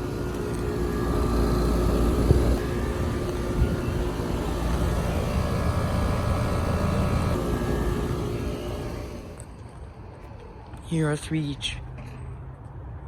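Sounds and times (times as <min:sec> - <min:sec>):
condenser fan rushing: 0:00.0 - 0:09.8
low even hum: 0:00.0 - 0:10.2.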